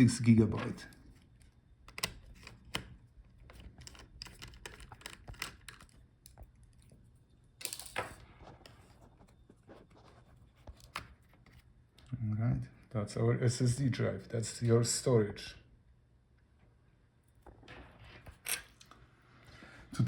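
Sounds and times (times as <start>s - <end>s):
small clicks and light scrapes: 0.9s - 7.0s, 7.6s - 12.1s.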